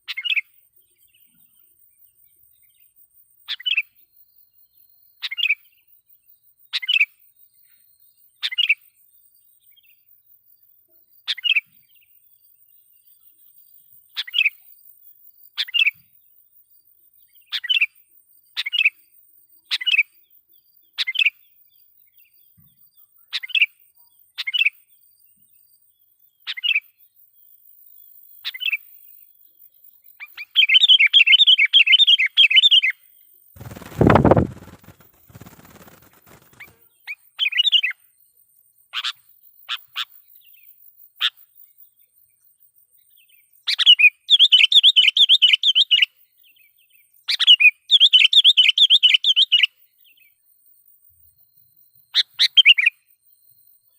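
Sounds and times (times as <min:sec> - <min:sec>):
bird chattering: 0:33.6 - 0:36.8.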